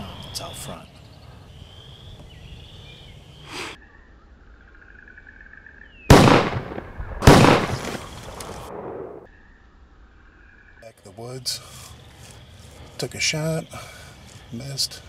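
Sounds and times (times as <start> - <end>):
shotgun shots: 6.1 - 9.3.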